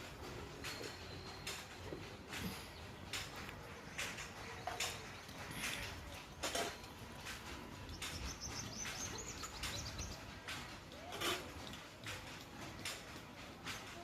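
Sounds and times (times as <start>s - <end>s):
small bird twittering: 8.0s - 10.2s.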